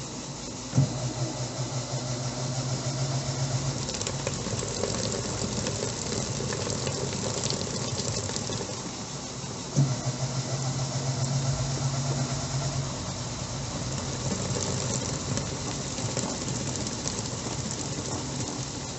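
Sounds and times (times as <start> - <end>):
washing machine motor humming: 0.0 - 18.9
motor clunk: 0.7 - 4.4, 9.7 - 14.5
water hissing: 3.3 - 18.9.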